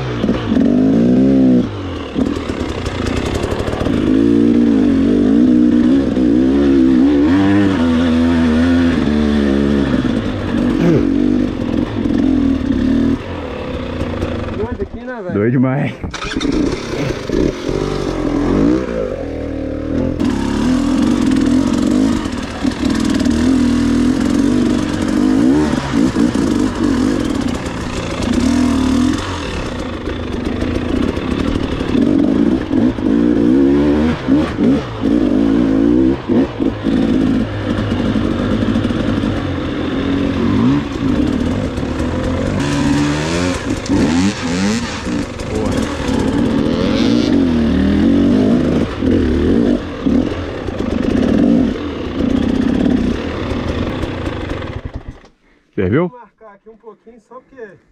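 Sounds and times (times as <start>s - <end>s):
dirt bike engine revving: 0.0s - 55.2s.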